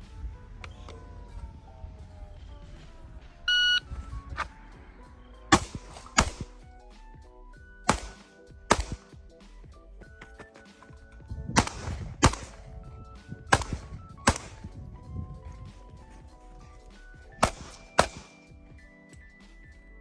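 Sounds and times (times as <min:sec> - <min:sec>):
background music: 0:00.0 - 0:20.0
pistol shots: 0:05.5 - 0:06.6, 0:07.9 - 0:09.2, 0:11.6 - 0:12.8, 0:13.5 - 0:14.8, 0:17.4 - 0:18.5.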